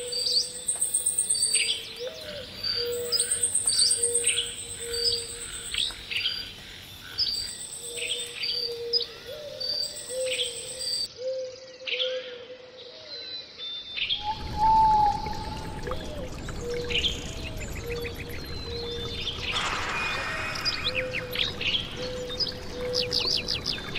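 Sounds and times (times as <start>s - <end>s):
birds chirping: 0.0s - 11.1s, 13.6s - 23.9s
flowing water: 14.2s - 23.9s
low even calls: 14.2s - 23.9s.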